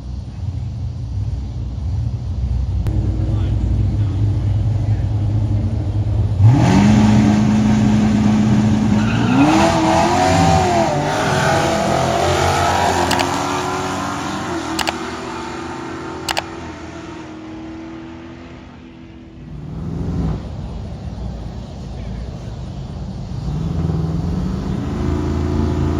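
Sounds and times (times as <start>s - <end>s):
drag car engine revving: 2.9s - 18.7s, 19.3s - 25.9s
short sharp clicks: 13.1s - 13.4s, 14.8s - 15.0s, 16.3s - 16.5s.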